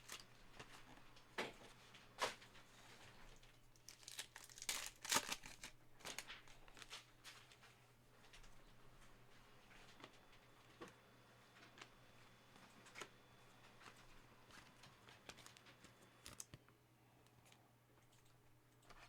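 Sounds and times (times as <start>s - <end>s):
card pack wrapper crinkling: 0.0s - 1.0s, 3.7s - 7.4s, 15.2s - 16.6s
cards being handled: 12.8s - 16.7s.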